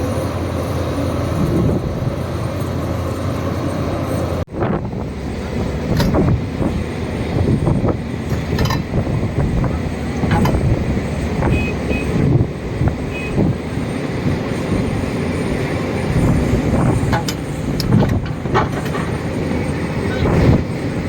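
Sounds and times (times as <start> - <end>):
diesel engine rumbling: 0.0 - 21.0
metallic clanks: 5.9 - 6.4, 8.2 - 9.2, 10.2 - 10.8, 16.6 - 20.3.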